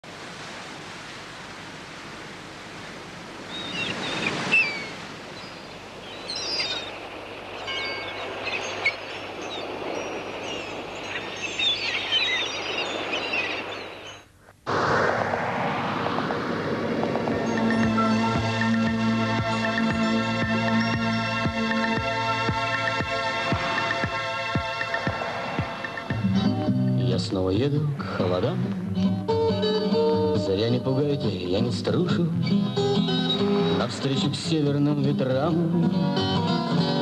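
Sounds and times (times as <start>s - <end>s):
sea surf washing: 0.0s - 37.0s
birds chirping: 3.4s - 14.4s, 17.3s - 27.6s
music: 17.5s - 27.4s, 28.0s - 37.0s.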